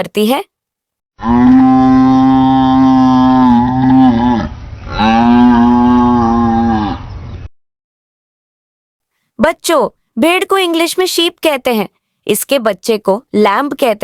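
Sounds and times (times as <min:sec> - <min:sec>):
buffalo mooing: 0:01.2 - 0:07.1.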